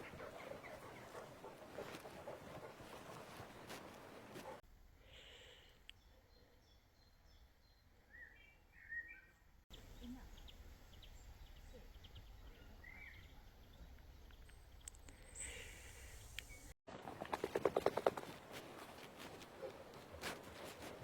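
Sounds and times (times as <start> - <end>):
faint bird chirps: 5.6 - 16.7.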